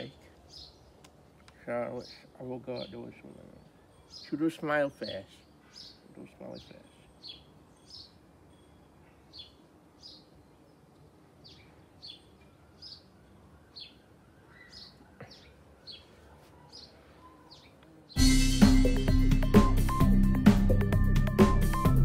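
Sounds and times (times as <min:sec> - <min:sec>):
small bird chirping: 0:01.9 - 0:18.3.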